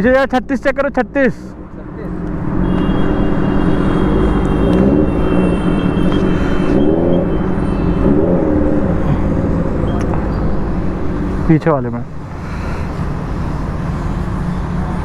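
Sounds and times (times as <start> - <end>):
low rumble: 8.6 - 15.0
compressed air hissing: 12.2 - 14.5.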